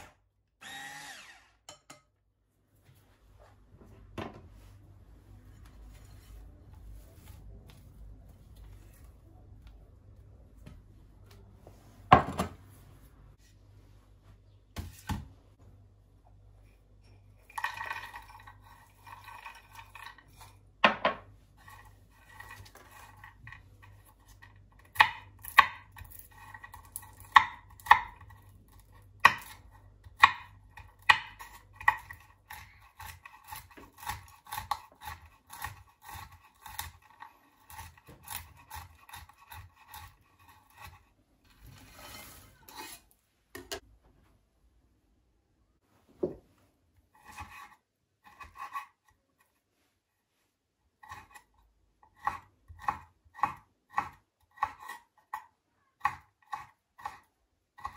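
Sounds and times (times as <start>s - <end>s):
knife chopping on cutting board: 52.2s - 55.0s.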